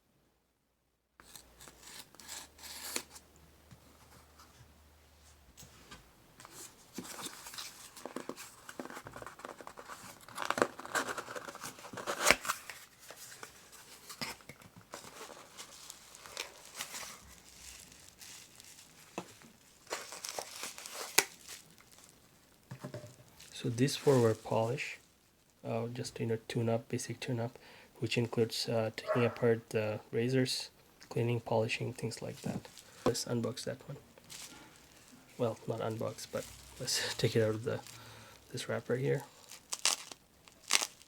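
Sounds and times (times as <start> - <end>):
packaging crinkling and tearing: 1.2 - 3.2, 6.5 - 22.6, 34.2 - 41.0.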